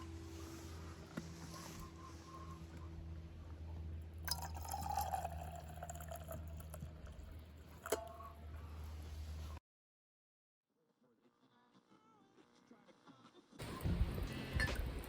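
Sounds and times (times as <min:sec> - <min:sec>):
steady low hum: 0:00.0 - 0:09.6
liquid pouring: 0:04.3 - 0:08.4.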